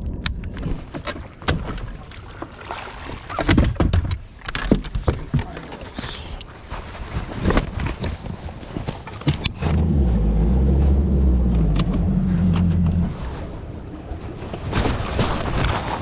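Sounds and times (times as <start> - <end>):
knocks and taps on boat: 3.3 - 5.8, 7.4 - 10.7
low rumble: 9.5 - 14.5.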